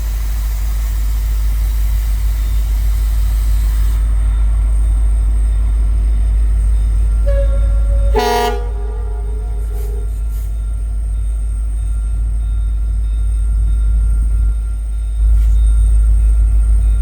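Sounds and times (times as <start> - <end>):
low rumble: 7.1 - 10.9
train horn chord: 7.2 - 10.8.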